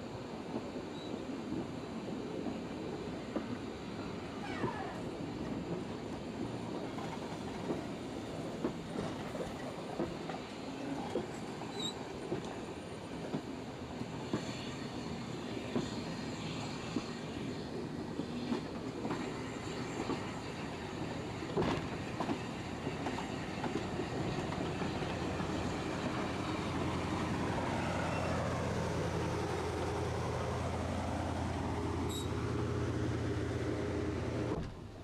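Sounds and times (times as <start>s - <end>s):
train wheels clicking and rumbling: 1.5s - 35.0s
high squeal: 32.1s - 32.4s.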